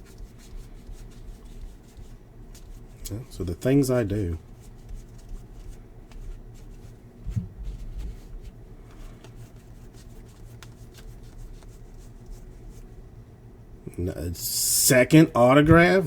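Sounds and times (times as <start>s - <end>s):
faint low hum: 0.0s - 16.0s
cards rustling and clicking: 4.7s - 12.4s.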